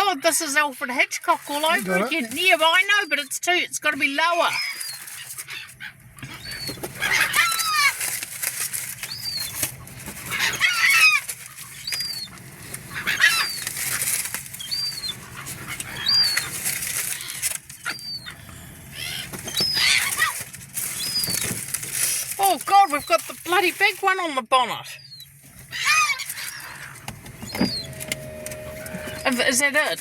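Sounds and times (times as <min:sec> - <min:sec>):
seagulls squawking: 0:04.3 - 0:21.7, 0:25.0 - 0:30.0
wings fluttering: 0:04.3 - 0:24.0, 0:25.1 - 0:29.9.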